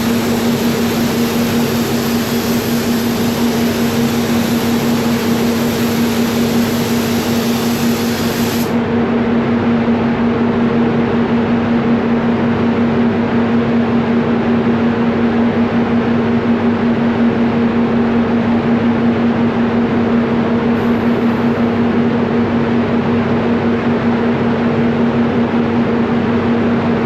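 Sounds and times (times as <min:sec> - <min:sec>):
spray gun air hiss: 0:00.0 - 0:08.8, 0:20.8 - 0:21.8
spray booth extraction fans humming: 0:00.0 - 0:09.3, 0:19.8 - 0:23.8.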